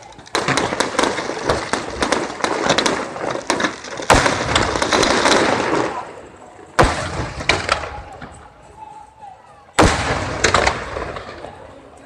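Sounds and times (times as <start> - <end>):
fireworks crackling: 0.0 - 12.0
firework bang: 0.3 - 6.1, 6.8 - 8.3, 9.8 - 11.4.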